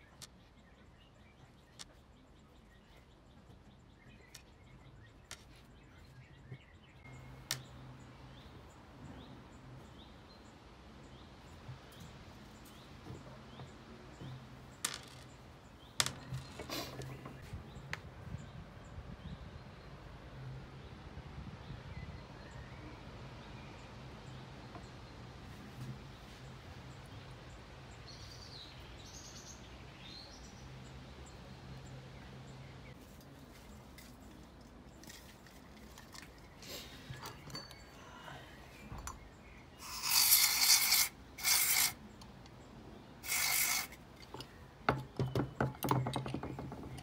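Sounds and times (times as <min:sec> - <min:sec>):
bird chirping: 0:00.0 - 0:20.0, 0:26.2 - 0:47.0.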